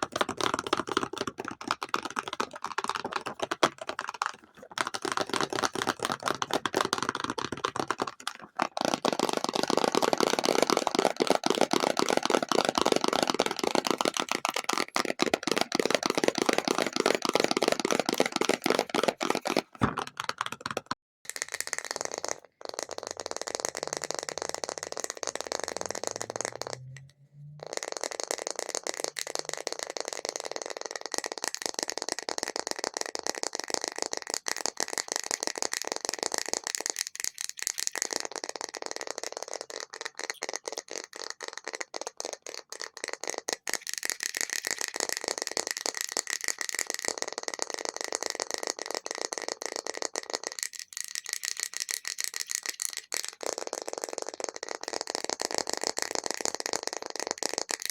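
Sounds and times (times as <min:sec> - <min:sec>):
fast tapping on an object: 0:00.0 - 0:57.9.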